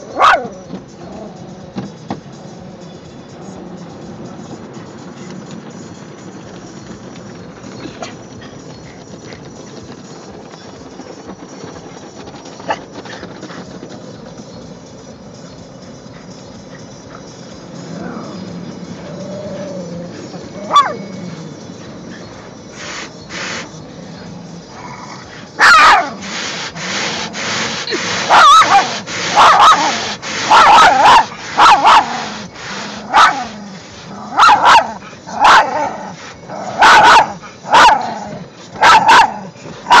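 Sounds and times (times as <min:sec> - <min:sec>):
small dog barking: 0:00.0 - 0:00.6, 0:20.6 - 0:21.1, 0:24.8 - 0:26.3, 0:27.9 - 0:40.0
steady car wash noise: 0:00.0 - 0:40.0
dog whining: 0:17.9 - 0:23.7, 0:24.7 - 0:26.4, 0:27.6 - 0:40.0.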